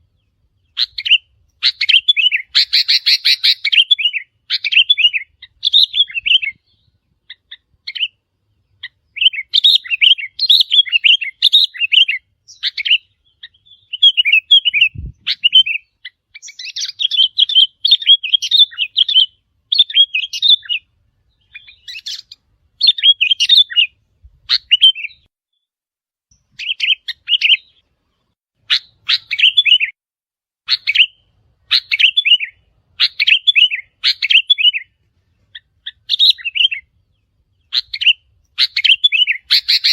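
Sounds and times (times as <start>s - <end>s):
bulbuls chirping: 0.0s - 25.3s, 26.3s - 29.9s, 30.7s - 39.9s.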